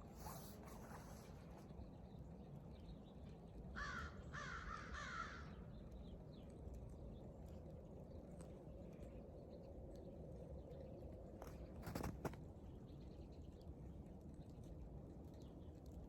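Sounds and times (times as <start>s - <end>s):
crow cawing: 3.8s - 5.5s.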